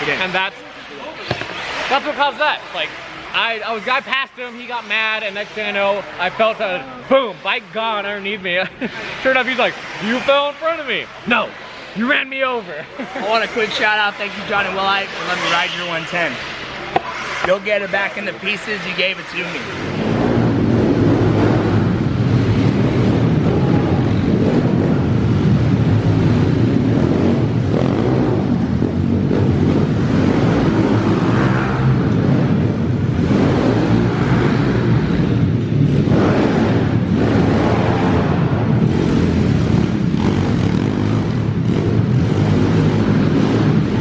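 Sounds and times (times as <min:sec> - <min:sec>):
motorbike engine revving: 0:19.6 - 0:44.0.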